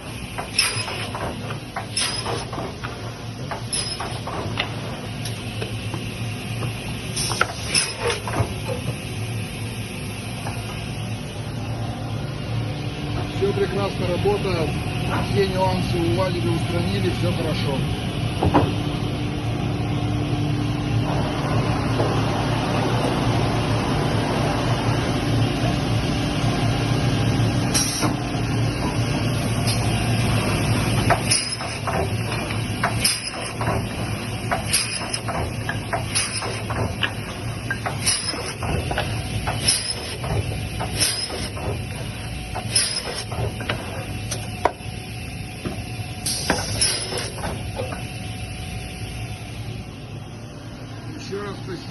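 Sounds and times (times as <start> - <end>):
pneumatic knock with air hiss: 0.0 - 11.1, 18.4 - 18.8, 27.7 - 49.5.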